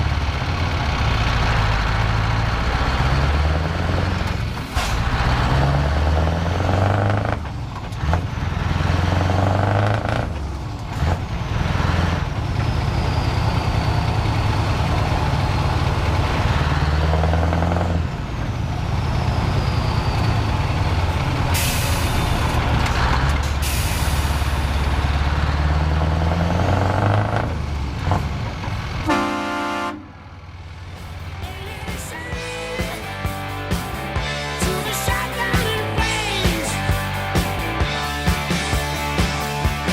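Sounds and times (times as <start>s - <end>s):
truck diesel engine accelerating: 0.0s - 39.9s
truck horn blast: 29.0s - 30.2s.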